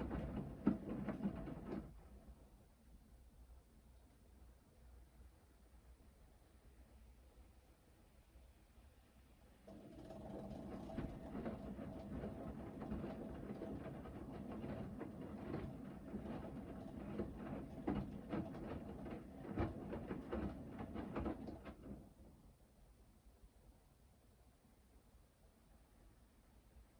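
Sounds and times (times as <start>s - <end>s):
washing machine motor humming: 9.7s - 22.0s.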